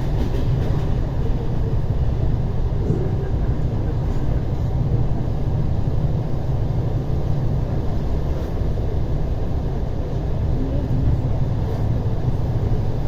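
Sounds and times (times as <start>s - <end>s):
train low rumble from inside: 0.0s - 13.0s.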